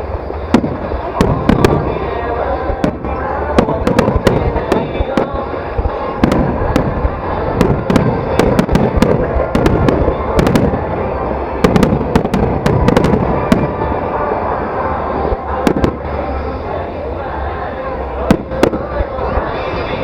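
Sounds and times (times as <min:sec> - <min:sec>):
firework crackles and pops: 0:00.0 - 0:14.0
rumble of firework bursts: 0:00.0 - 0:20.0.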